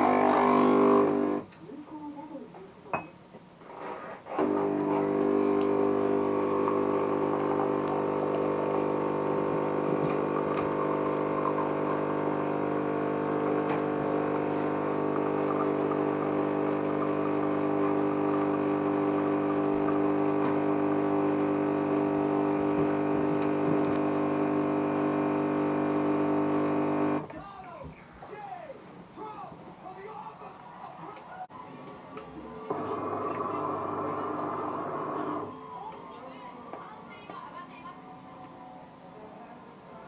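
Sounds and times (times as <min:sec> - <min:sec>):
espresso machine humming: 0:00.0 - 0:01.4, 0:04.4 - 0:27.3, 0:32.7 - 0:35.5.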